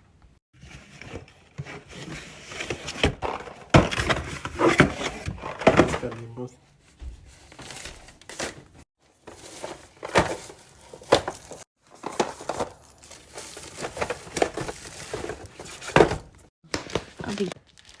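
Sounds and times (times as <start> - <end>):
packaging crinkling and tearing: 9.2 - 15.6, 16.7 - 18.0.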